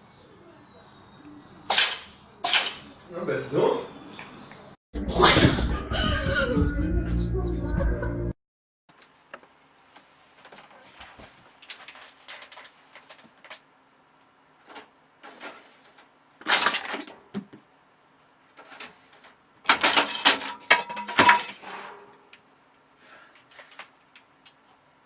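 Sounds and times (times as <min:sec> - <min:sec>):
hard objects clattering: 0:14.7 - 0:17.6, 0:18.6 - 0:22.3.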